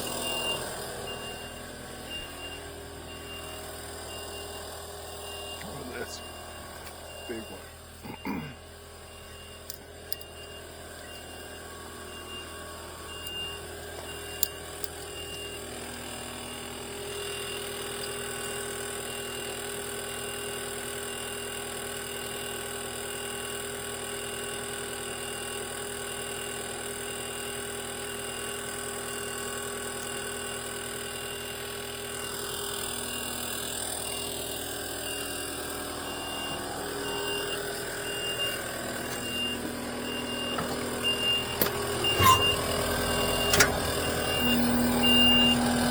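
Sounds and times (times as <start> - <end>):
machine engine running: 30.6 - 45.9
short high beeps: 35.1 - 45.9.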